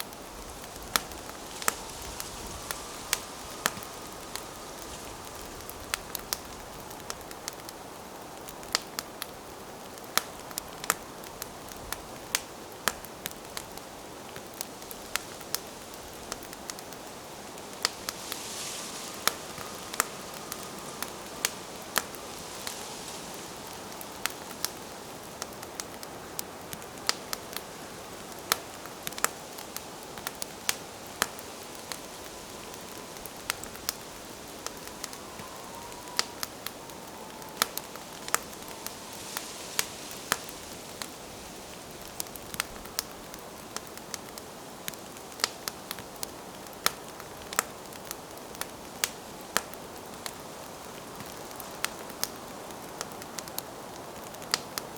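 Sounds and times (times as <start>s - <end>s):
campfire crackling and popping: 0.0s - 54.9s
flames hissing: 0.1s - 8.0s, 13.5s - 42.7s.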